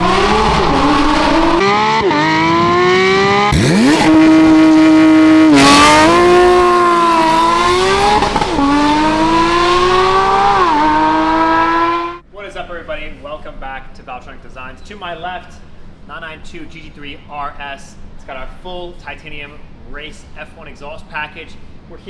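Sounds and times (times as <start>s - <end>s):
sports car engine revving: 0.0s - 12.2s.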